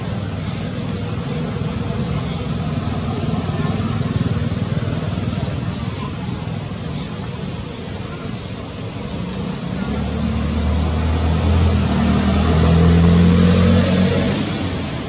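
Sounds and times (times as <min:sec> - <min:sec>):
vehicle engine passing by: 0:09.2 - 0:15.0.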